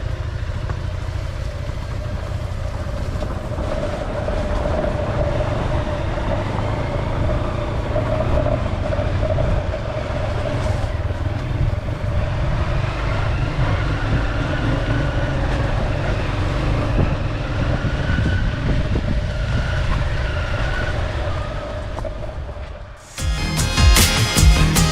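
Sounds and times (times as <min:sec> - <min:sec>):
dirt bike engine running: 0:00.0 - 0:17.2.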